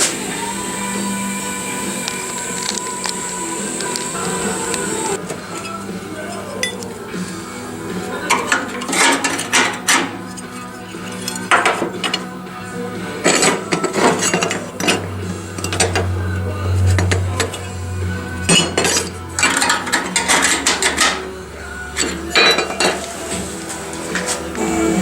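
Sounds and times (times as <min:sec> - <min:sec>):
metal clanking and knocking: 0:08.3 - 0:12.4, 0:13.3 - 0:16.2, 0:18.4 - 0:21.4, 0:22.0 - 0:23.4.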